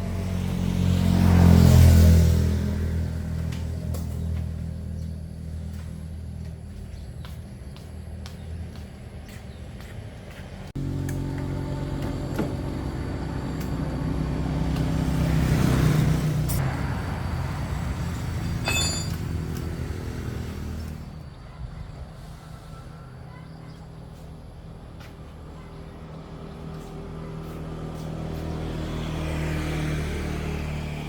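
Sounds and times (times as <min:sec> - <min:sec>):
small motorbike engine running: 0:10.8 - 0:21.4.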